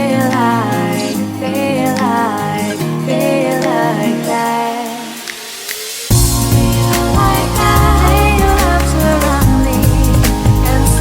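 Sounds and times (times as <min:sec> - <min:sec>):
rising synth sweep: 0:04.9 - 0:10.9
heavy bass and drums beat: 0:05.6 - 0:11.0.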